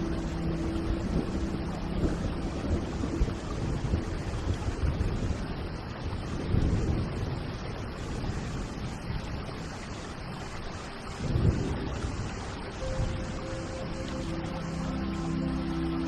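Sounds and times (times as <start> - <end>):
faint music notes: 0.0 - 5.4, 11.0 - 16.0
rolling thunder: 0.0 - 9.8, 11.2 - 13.5
rain hissing: 0.0 - 16.0.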